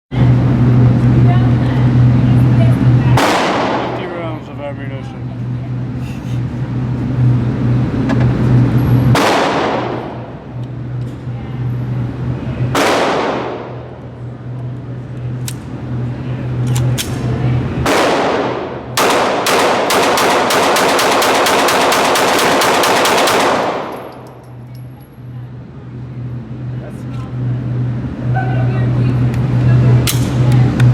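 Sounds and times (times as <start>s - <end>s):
pistol shots echoing indoors: 3.2s - 4.0s, 9.1s - 10.3s, 12.7s - 13.8s, 17.8s - 24.4s.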